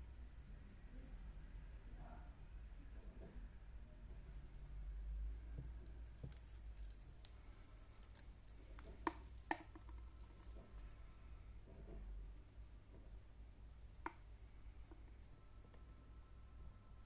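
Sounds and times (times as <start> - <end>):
low steady hum: 0.0 - 17.0
small clicks and taps handling watch: 5.8 - 10.8.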